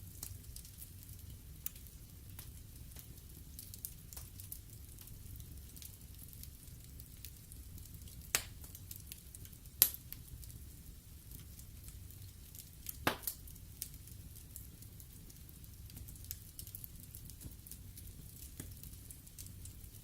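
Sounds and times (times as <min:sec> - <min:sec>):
wood fire burning: 0:00.0 - 0:20.0
loud fire pops: 0:08.2 - 0:09.2, 0:09.8 - 0:10.3, 0:12.8 - 0:14.0.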